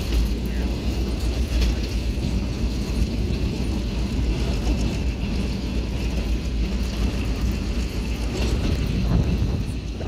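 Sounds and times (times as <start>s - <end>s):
train wheels rumbling: 0.0s - 10.0s
wind noise: 0.0s - 10.0s.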